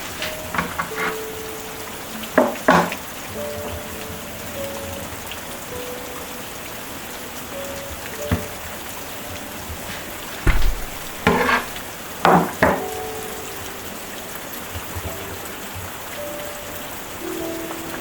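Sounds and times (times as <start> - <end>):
steady hiss: 0.0 - 18.0
utensil scraping cooking pot: 0.2 - 1.2, 11.2 - 11.8.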